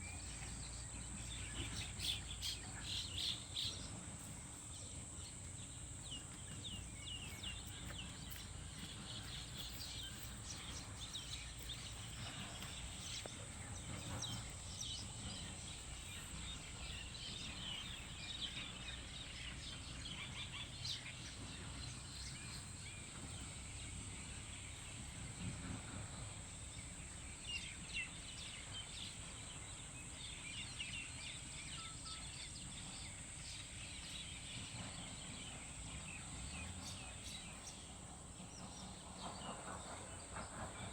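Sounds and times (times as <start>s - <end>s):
small birds chirping: 0.0s - 25.4s.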